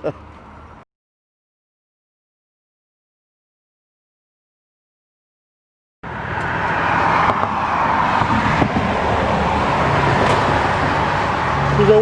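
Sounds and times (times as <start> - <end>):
broad rushing noise: 6.1 - 12.0.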